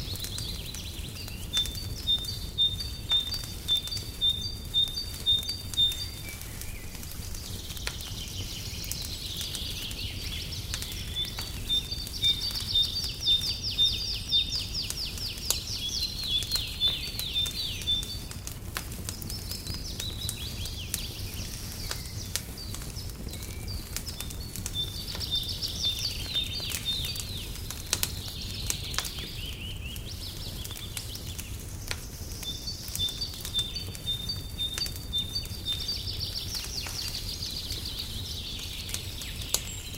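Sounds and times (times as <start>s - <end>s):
birds chirping and trilling: 0.0s - 39.9s
crackling fire with pops: 0.0s - 39.9s.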